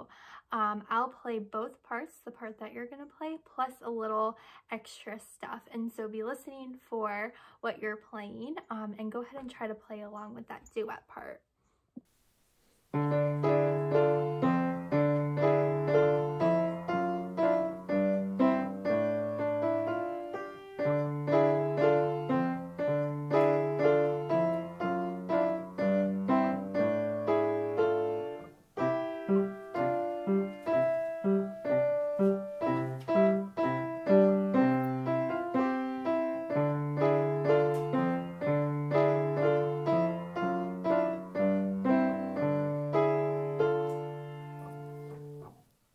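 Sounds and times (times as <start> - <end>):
piano duet: 12.9 - 45.6.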